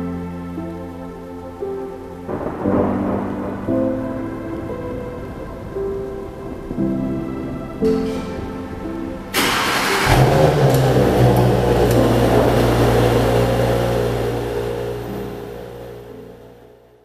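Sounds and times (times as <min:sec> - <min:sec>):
car engine starting and idling: 0:09.2 - 0:17.0.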